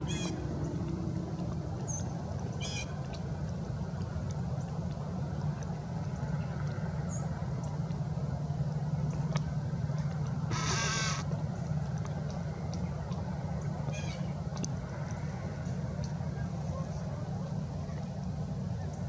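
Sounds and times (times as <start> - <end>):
nasal bird calls: 0.0 - 0.4, 10.5 - 11.3, 13.9 - 14.3
steady low rumble: 0.0 - 19.0.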